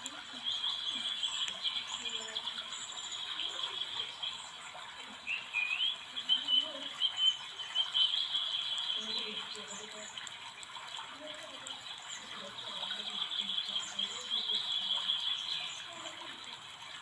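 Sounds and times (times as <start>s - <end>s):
small birds chirping and trilling: 0.0s - 17.0s.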